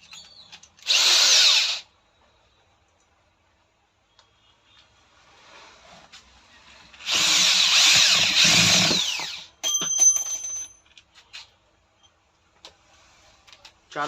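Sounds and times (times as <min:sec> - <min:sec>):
power drill driving screws: 0:00.8 - 0:01.9, 0:07.0 - 0:09.5.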